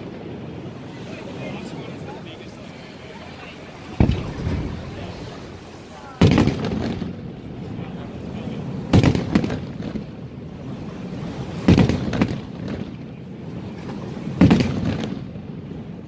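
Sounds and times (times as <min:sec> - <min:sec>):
smaller firework bang: 0:03.9 - 0:05.0, 0:06.2 - 0:07.4, 0:08.9 - 0:10.2, 0:11.6 - 0:13.0, 0:13.8 - 0:15.7
firework shells booming: 0:03.9 - 0:05.2, 0:06.1 - 0:07.8, 0:08.8 - 0:10.3, 0:11.6 - 0:13.2, 0:13.8 - 0:15.8.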